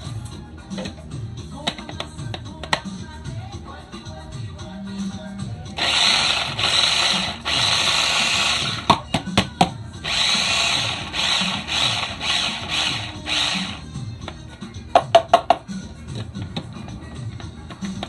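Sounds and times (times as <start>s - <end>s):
food processor chopping: 5.8s - 9.0s, 10.0s - 13.8s.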